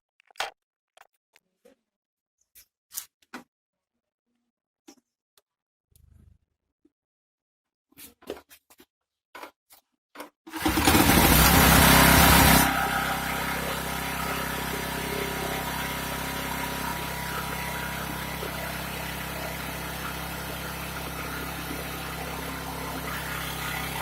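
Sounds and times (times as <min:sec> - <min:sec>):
generator engine running: 0:10.6 - 0:24.0.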